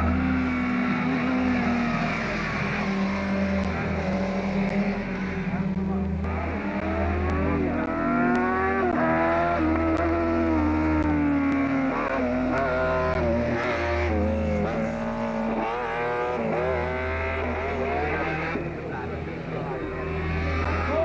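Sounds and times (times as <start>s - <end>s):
rally car engine revving: 0.0s - 21.0s.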